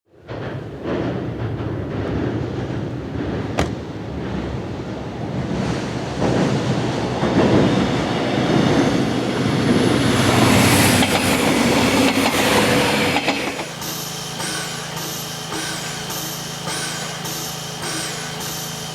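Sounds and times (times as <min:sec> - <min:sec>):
train wheels clattering on rails: 0:00.1 - 0:18.9
steam train hiss: 0:05.7 - 0:18.9.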